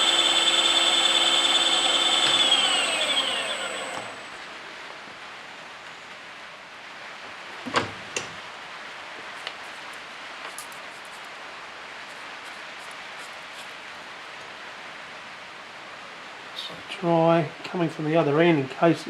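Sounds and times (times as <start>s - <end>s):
milling machine motor whine: 0.0s - 4.4s.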